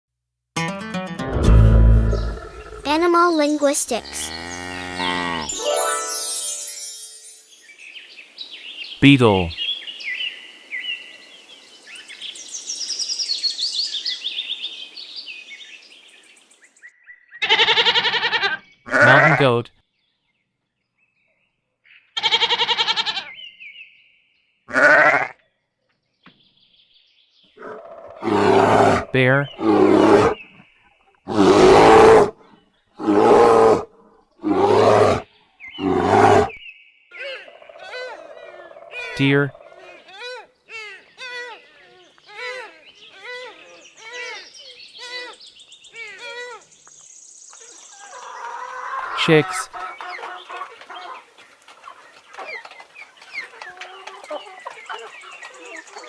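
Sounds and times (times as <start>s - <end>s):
steady outdoor hiss: 5.7s - 16.7s, 46.6s - 48.4s
bear roaring: 27.6s - 30.4s, 31.3s - 32.3s, 33.0s - 35.2s, 35.8s - 36.5s
small birds chirping: 35.3s - 56.0s.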